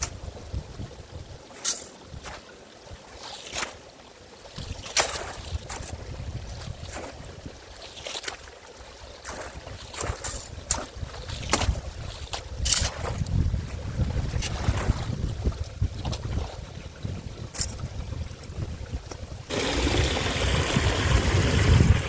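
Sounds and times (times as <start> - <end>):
wind rumbling on microphone: 0.0 - 2.4, 4.6 - 7.7, 9.2 - 22.0
rake scraping wet leaves: 9.2 - 13.0.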